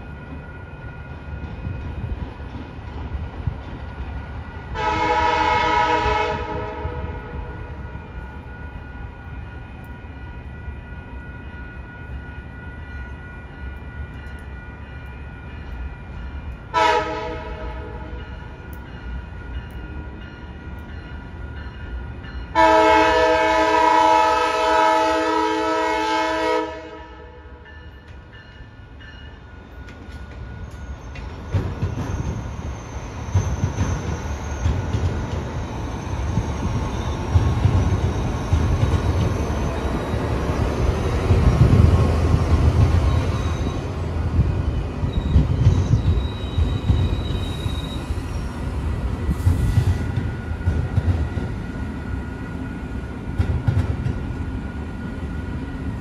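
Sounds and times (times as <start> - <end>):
train rumbling past: 0.0 - 56.0
train horn blasts: 4.7 - 7.8, 16.7 - 18.3, 22.5 - 27.6.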